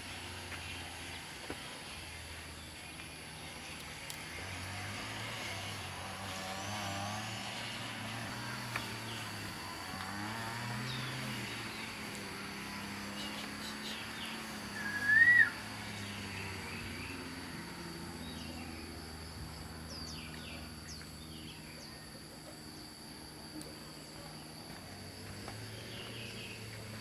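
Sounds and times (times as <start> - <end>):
low engine hum: 0.0 - 27.0
faint bird chirps: 13.1 - 17.2
whistled call: 13.2 - 15.8.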